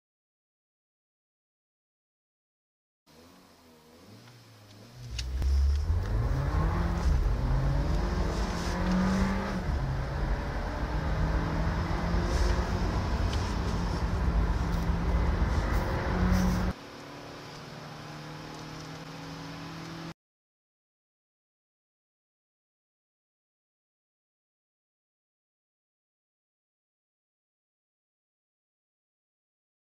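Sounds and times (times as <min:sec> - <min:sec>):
car engine accelerating: 0:03.1 - 0:20.2.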